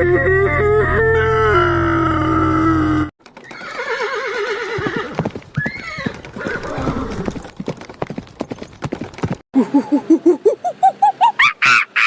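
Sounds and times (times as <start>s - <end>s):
horse whinnying: 1.2s - 7.4s
hooves clopping: 3.2s - 9.4s.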